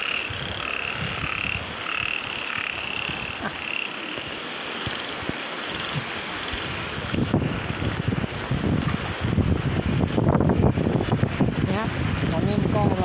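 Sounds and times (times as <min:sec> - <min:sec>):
frogs calling: 0:00.0 - 0:06.7
wind rumble on microphone: 0:00.0 - 0:13.0.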